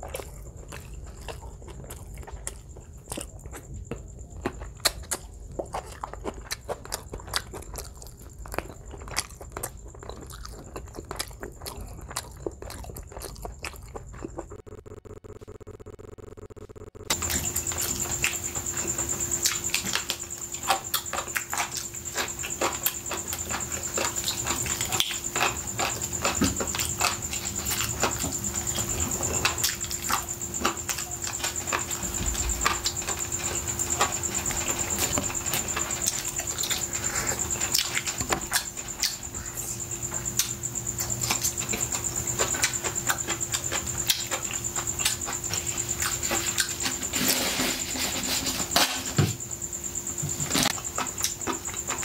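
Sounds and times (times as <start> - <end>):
chewing mouth sounds: 0.0 - 14.8, 17.1 - 46.8
steady high whine: 14.2 - 38.3.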